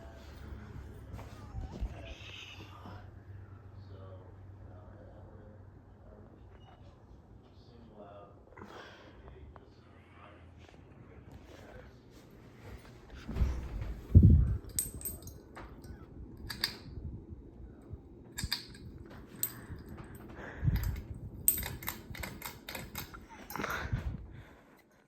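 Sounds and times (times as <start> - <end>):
ceiling fan running: 0.0 - 25.0
air buffeting microphone: 11.4 - 24.7
sharp clicks and rattles: 18.3 - 23.8.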